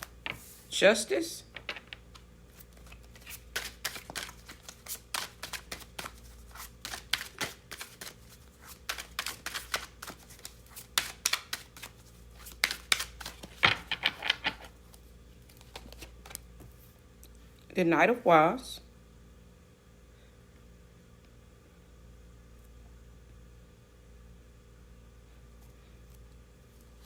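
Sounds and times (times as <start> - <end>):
cards being shuffled: 1.6 - 16.8.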